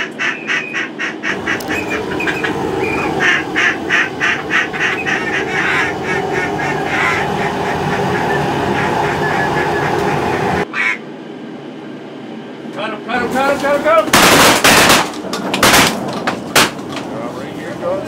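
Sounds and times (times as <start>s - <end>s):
duck quacks: 0.0s - 11.0s
steady background noise: 0.0s - 18.0s.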